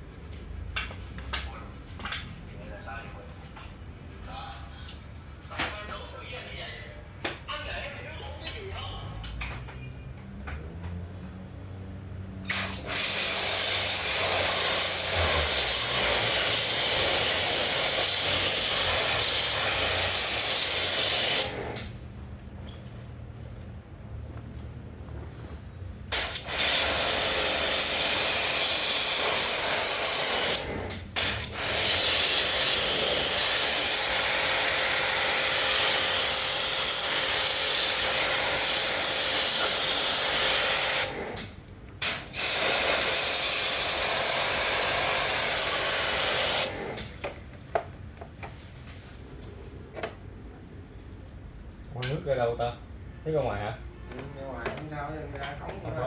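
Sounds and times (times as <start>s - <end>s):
pressure washer water spray: 12.5s - 22.0s, 26.1s - 47.2s.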